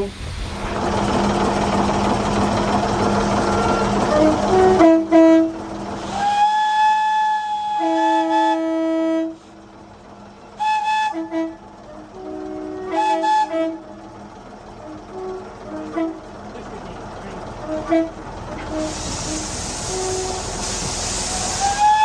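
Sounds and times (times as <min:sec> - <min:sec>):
steam hissing: 0:00.0 - 0:22.0
locomotive whistle blasts: 0:03.3 - 0:09.5, 0:10.6 - 0:14.0, 0:14.8 - 0:16.3, 0:17.6 - 0:22.0.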